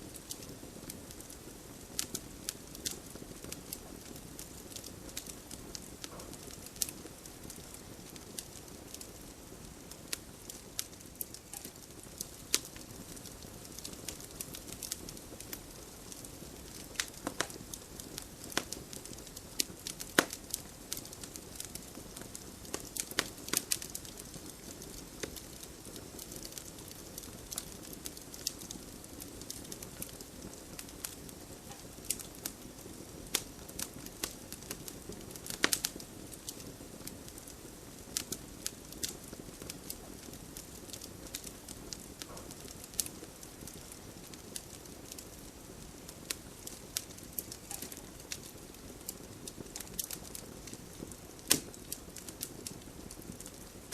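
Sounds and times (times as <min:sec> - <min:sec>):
low rustle of burning logs: 0:00.0 - 0:53.9
wood fire crackling: 0:00.0 - 0:53.9.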